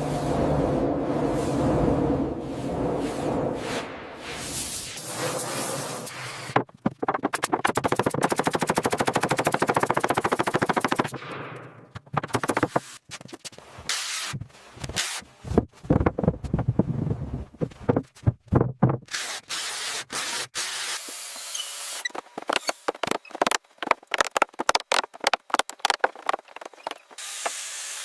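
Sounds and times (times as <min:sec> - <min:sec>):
knocks and clatter: 0:06.5 - 0:13.5, 0:15.4 - 0:19.1, 0:22.1 - 0:27.2
power tool hammering: 0:27.2 - 0:28.0.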